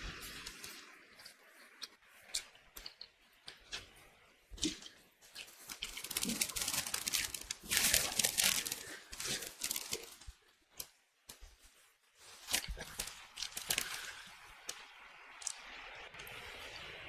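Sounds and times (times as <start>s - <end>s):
clicks and crackles: 0.0s - 16.5s
food packaging crinkling: 4.5s - 15.9s.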